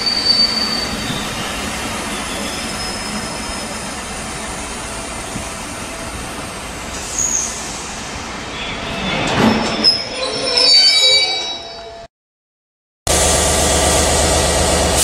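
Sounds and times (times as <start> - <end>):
metallic wheel squealing: 8.6 - 12.1.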